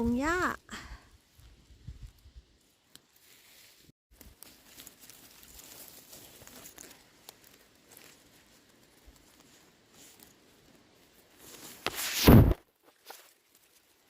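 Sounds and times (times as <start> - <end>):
grass and twigs rustling by hand: 0.0 - 14.0
loud rustle: 3.1 - 14.0.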